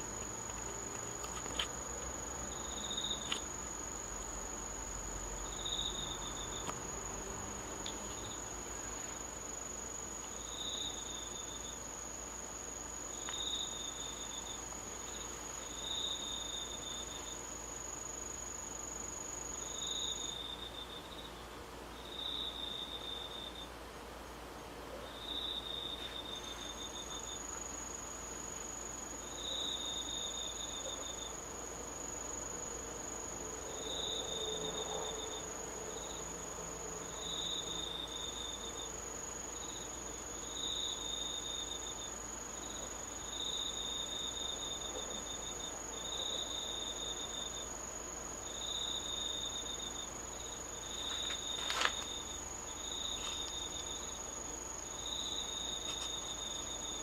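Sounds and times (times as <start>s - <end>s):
insect high-pitched trill: 0.0s - 21.4s, 22.0s - 23.7s, 25.2s - 57.0s
insect lower trills: 0.0s - 23.8s, 25.0s - 57.0s.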